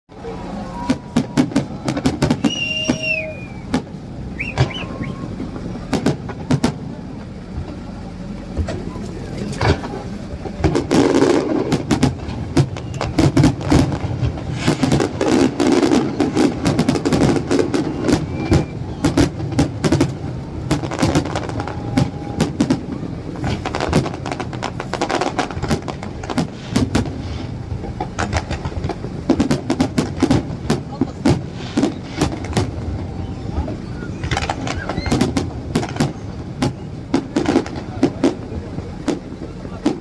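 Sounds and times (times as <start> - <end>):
continuous low rumble: 0.1 - 40.0
fireworks bangs and crackles: 0.1 - 40.0.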